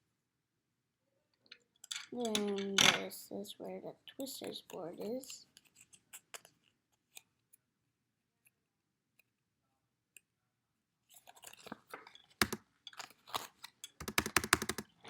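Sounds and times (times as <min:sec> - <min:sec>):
plastic crinkling with clicks: 0:04.4 - 0:07.6, 0:11.1 - 0:15.0.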